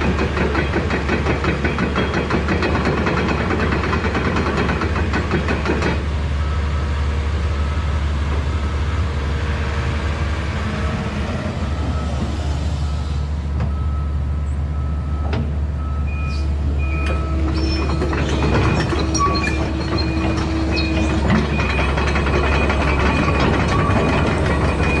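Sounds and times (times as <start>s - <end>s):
excavator diesel engine running: 0.0s - 25.0s
metal clanking and squealing: 16.3s - 25.0s.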